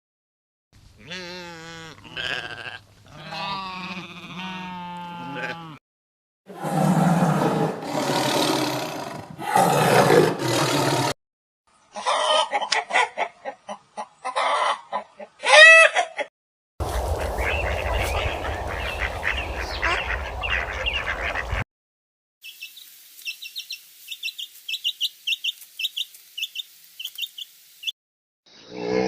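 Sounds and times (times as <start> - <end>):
wavering bleat: 1.0 - 5.8
loud rough animal calls: 6.5 - 11.2
hen clucking: 12.0 - 16.3, 16.9 - 21.6.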